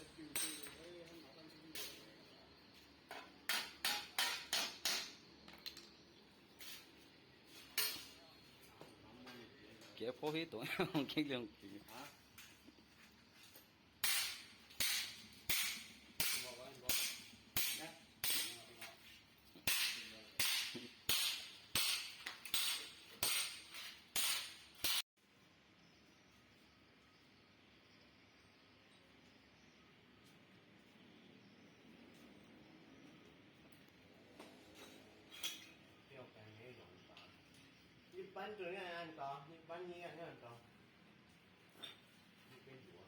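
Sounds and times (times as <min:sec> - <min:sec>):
hammer on sheet metal: 0:03.5 - 0:05.2, 0:14.0 - 0:18.9, 0:19.6 - 0:25.0.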